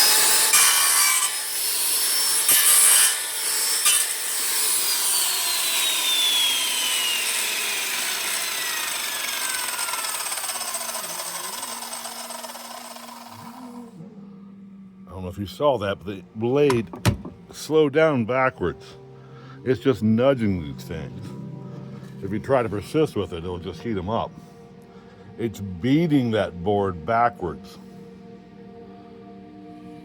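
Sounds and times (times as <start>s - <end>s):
saw blade scraping wood: 0.0s - 13.8s
circular saw motor whining: 0.0s - 14.0s.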